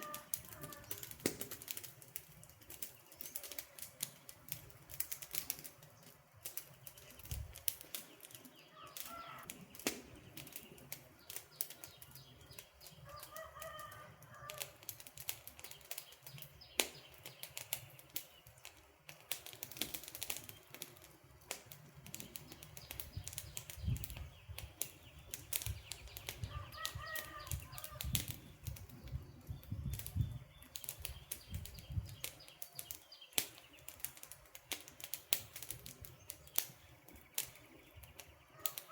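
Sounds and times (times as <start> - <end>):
campfire crackling and popping: 0.0 - 38.9
bird calling: 8.6 - 9.8, 26.0 - 28.2.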